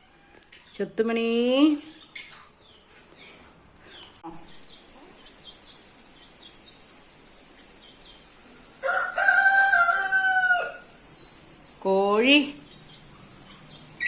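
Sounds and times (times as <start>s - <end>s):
rooster crowing: 8.8s - 10.9s.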